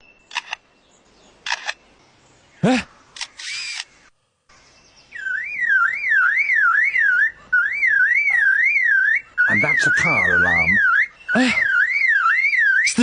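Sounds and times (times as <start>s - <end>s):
bird warbling whistled call: 5.1s - 13.0s.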